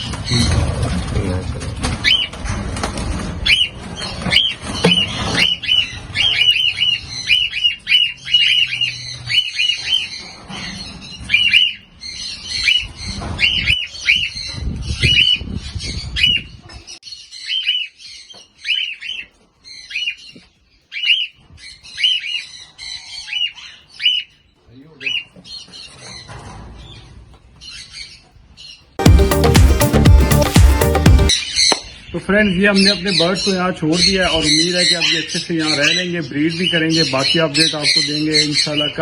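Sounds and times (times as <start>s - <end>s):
low rustling and rumbling: 0.0s - 7.6s
cockatiels squawking: 1.9s - 2.4s, 3.4s - 16.6s, 25.0s - 28.2s, 32.7s - 39.0s.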